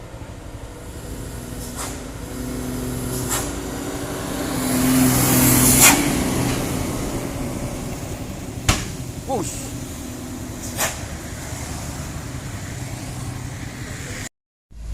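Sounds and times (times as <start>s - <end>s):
truck diesel engine climbing: 0.0s - 14.9s
air hiss: 0.8s - 4.0s.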